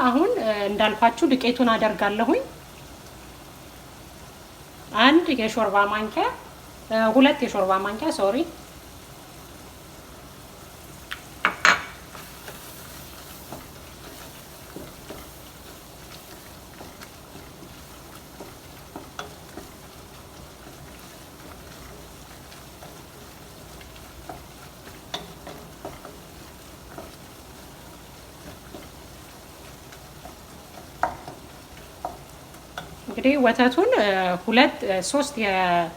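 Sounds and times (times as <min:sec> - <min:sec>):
roux sizzling in a frying pan: 0:00.0 - 0:35.9
sharp knock on a pan: 0:11.4 - 0:12.0
utensil scraping a pan: 0:11.4 - 0:33.2.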